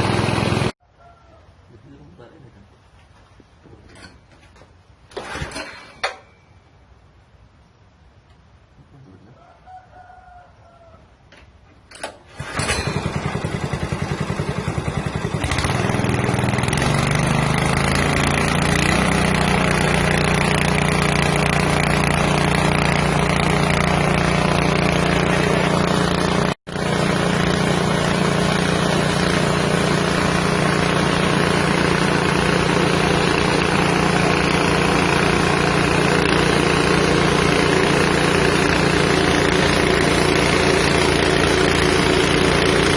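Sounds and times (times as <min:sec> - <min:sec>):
small engine of milling machine: 0:00.0 - 0:00.8, 0:12.3 - 0:42.9.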